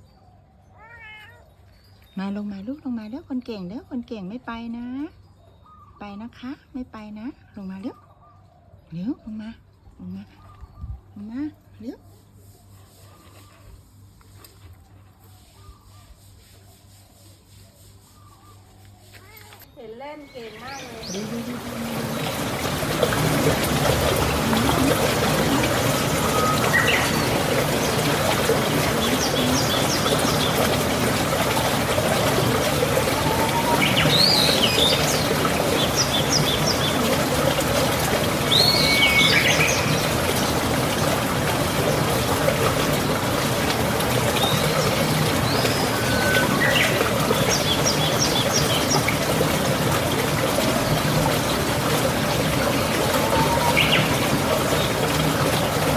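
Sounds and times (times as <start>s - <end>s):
birds whistling and chirping: 25.6s - 28.0s, 33.0s - 37.0s, 38.5s - 40.1s, 44.4s - 49.0s, 53.1s - 54.2s.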